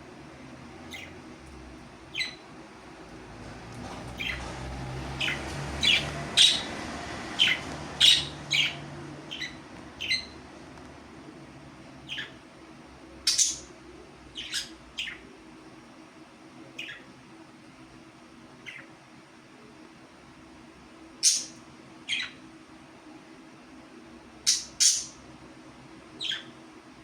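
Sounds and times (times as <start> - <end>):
parrot chirping: 0.8 - 1.2, 2.1 - 2.4, 4.2 - 4.4, 5.1 - 10.4, 12.0 - 12.4, 13.2 - 13.7, 14.3 - 15.2, 16.8 - 17.1, 21.2 - 22.4, 24.4 - 25.2, 26.2 - 26.6.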